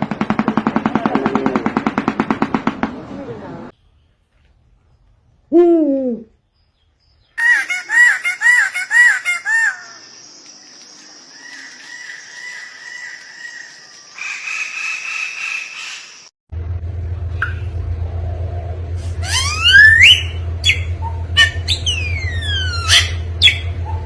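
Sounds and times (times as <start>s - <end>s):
long high-pitched bird call: 7.2s - 16.2s, 19.1s - 23.8s
quick rising and falling bird calls: 19.0s - 24.0s.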